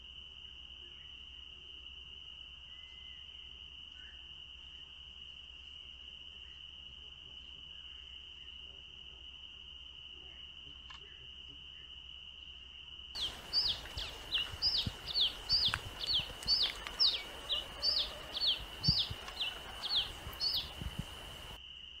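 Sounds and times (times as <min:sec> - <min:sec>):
bird whistled calls: 0:13.2 - 0:21.6.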